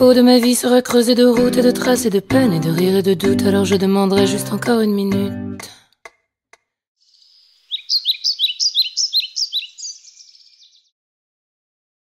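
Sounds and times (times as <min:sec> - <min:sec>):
songbird singing: 0:07.0 - 0:10.9.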